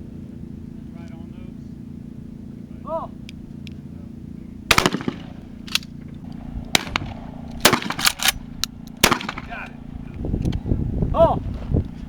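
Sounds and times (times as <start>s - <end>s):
shotgun shots: 4.7s - 9.8s.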